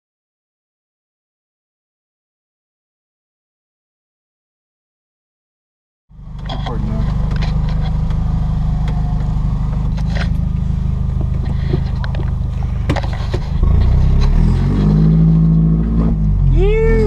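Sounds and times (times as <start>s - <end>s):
car exhaust low drone: 6.1s - 17.0s.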